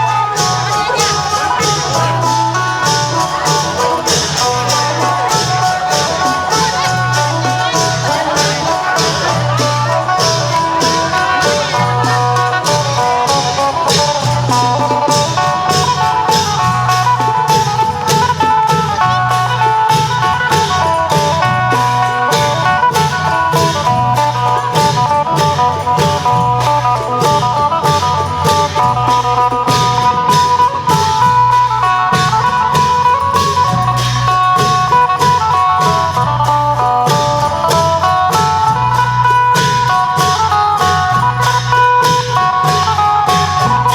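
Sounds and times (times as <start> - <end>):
drums and cymbals beat: 0.0 - 43.9
plucked lute melody: 0.0 - 43.9.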